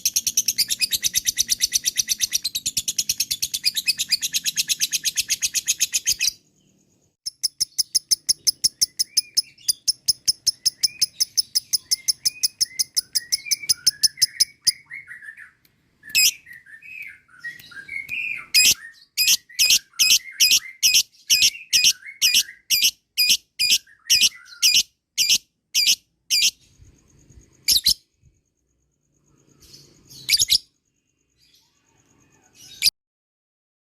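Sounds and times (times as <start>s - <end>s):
lovebird shrill calls: 7.3s - 26.6s, 27.7s - 28.0s.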